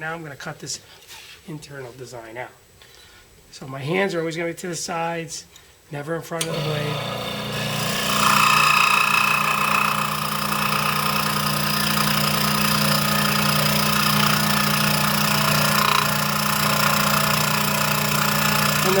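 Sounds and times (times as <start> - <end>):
scroll saw running: 6.4 - 19.0.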